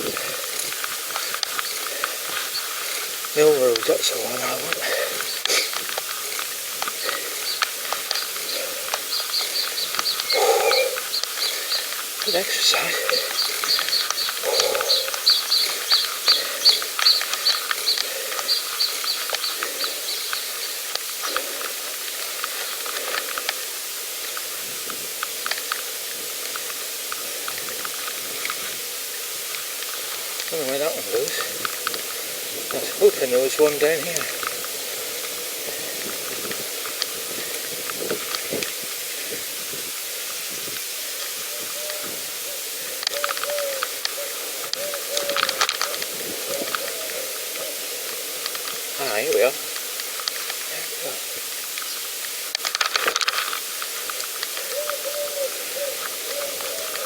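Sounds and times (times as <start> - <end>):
steady hiss: 0.0 - 57.0
light ticks: 0.1 - 38.7.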